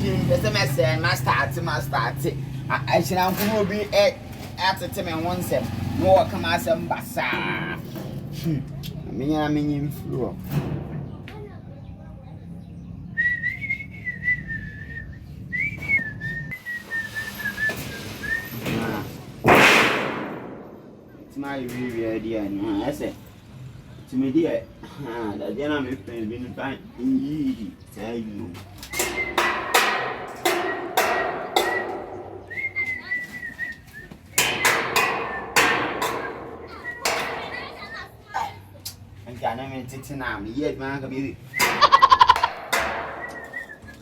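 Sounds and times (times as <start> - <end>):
person whistling a tune: 13.2 - 18.6, 28.9 - 29.8, 30.5 - 35.6, 36.2 - 37.2, 43.2 - 44.0
hammer blows: 15.8 - 21.9, 28.9 - 38.0, 41.5 - 44.0.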